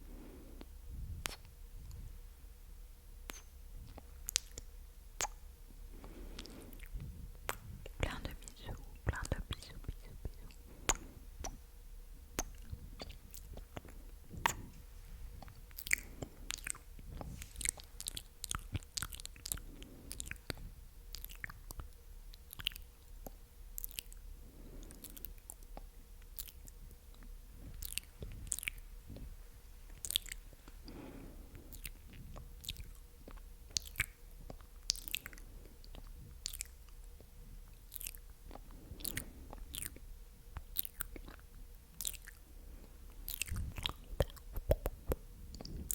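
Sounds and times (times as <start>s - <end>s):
wet tongue and lip clicks: 0.6s - 2.0s, 3.2s - 11.7s, 12.3s - 14.8s, 15.4s - 45.9s.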